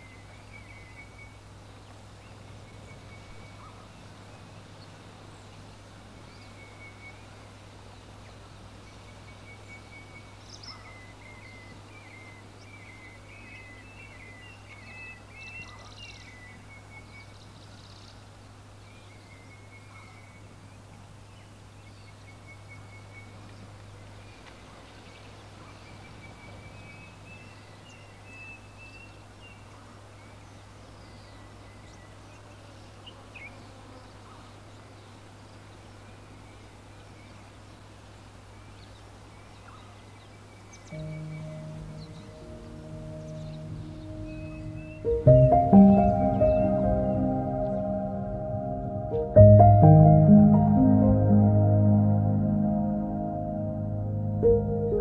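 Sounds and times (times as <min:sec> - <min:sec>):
small birds chirping: 0:00.0 - 0:52.6
low outdoor hum: 0:34.2 - 0:55.0.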